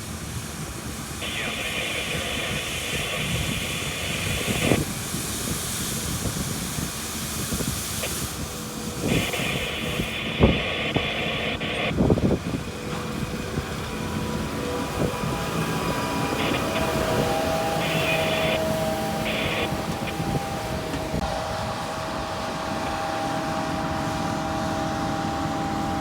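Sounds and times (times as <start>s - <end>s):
hiss: 0.1s - 12.0s, 15.0s - 20.8s
harvest machinery rumbling: 8.1s - 26.0s.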